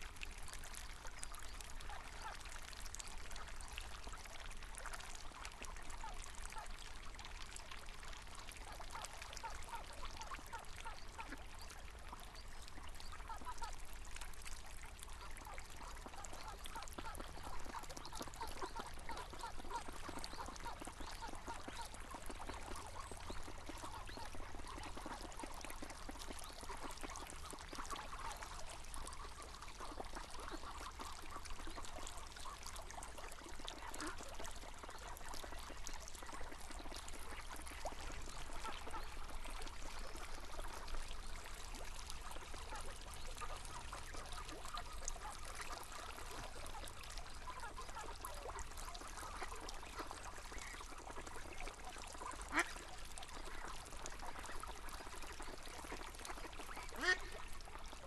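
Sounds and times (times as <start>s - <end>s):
river water running: 0.0s - 58.0s
ducks quacking: 52.1s - 52.8s, 56.3s - 57.4s.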